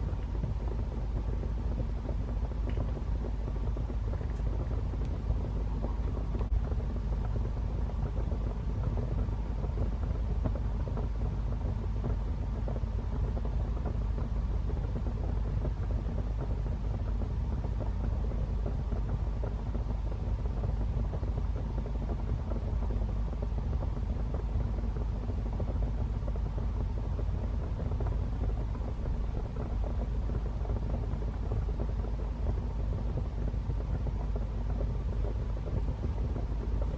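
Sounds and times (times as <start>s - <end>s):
fire rumbling: 0.0s - 36.9s.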